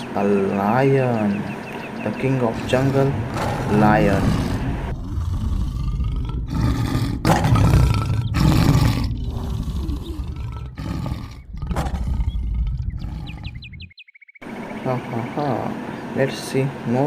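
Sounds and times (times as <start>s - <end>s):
lion roaring: 2.1s - 13.9s.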